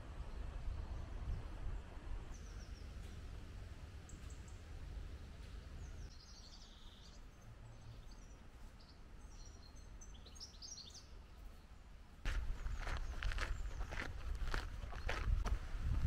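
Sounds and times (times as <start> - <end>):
low outdoor rumble: 0.0 - 10.1
small birds chirping: 2.3 - 15.4.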